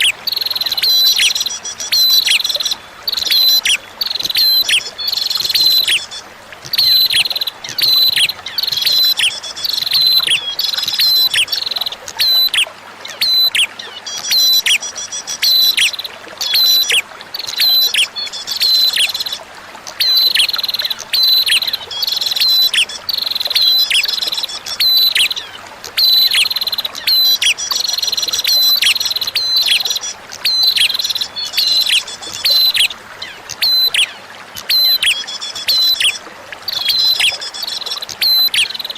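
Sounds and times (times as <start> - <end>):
bird chirping phrases: 0.0 - 38.9
faint trickle of water: 0.0 - 38.9.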